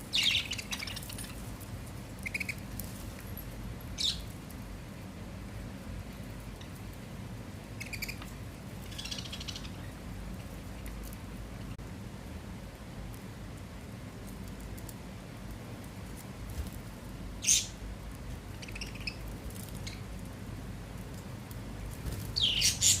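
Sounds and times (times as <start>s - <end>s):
steady low hum: 0.0s - 23.0s
budgerigars chirping: 0.1s - 1.4s, 7.8s - 8.2s, 8.9s - 9.8s, 22.4s - 23.0s.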